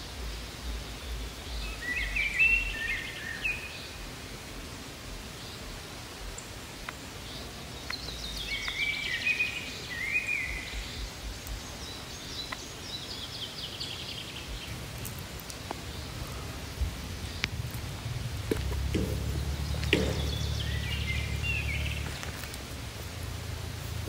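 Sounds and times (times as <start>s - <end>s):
outdoor hiss: 0.0s - 24.0s
songbird trilling: 7.4s - 14.8s, 15.8s - 22.5s.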